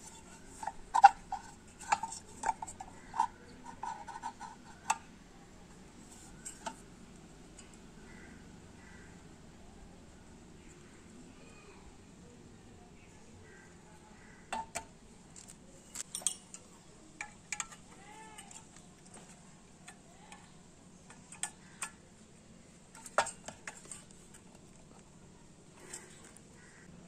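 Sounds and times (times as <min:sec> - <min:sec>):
metal parts clinking: 0:15.4 - 0:18.8.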